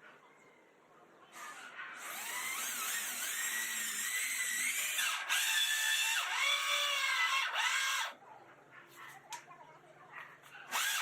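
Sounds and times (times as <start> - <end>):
electric drill whining: 2.0 - 8.2, 10.7 - 11.0.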